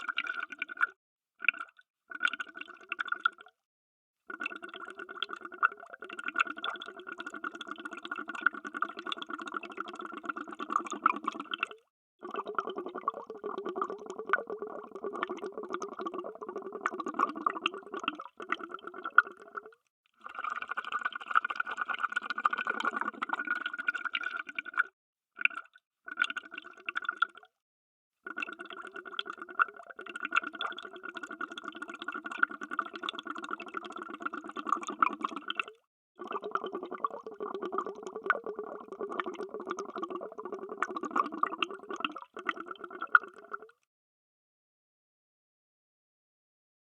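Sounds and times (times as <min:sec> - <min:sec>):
underwater bubbling: 0:04.3 - 0:27.4, 0:28.3 - 0:43.8.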